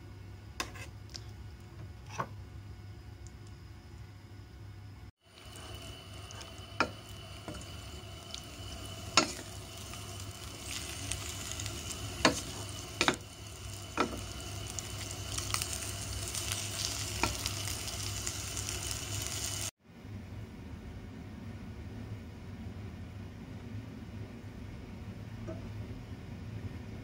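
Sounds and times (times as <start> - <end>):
vegetables sizzling in a pot: 5.2 - 19.8.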